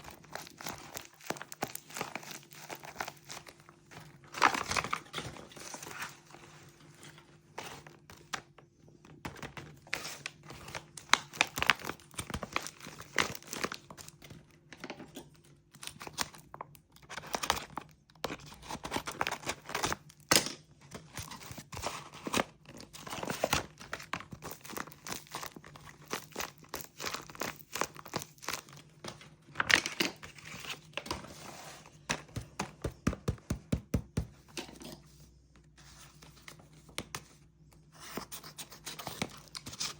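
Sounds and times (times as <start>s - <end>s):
plastic packaging crinkling and tearing: 0.0s - 8.5s, 9.3s - 32.0s.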